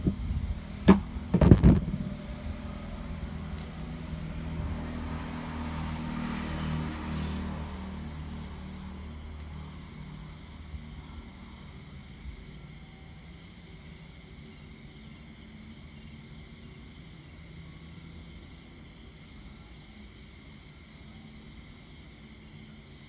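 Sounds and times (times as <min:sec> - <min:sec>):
low engine rumble: 0:00.0 - 0:11.7
sharp bang: 0:00.9 - 0:02.4.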